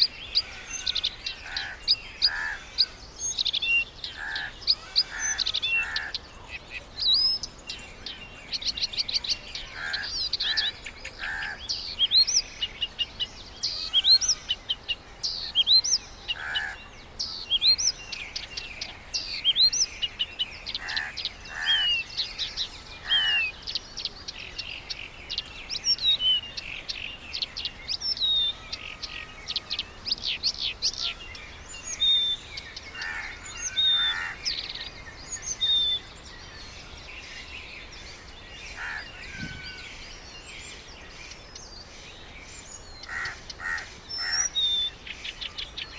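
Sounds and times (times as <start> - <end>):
birds chirping and whistling: 0.0 - 45.9
harsh low bird call: 38.8 - 40.0.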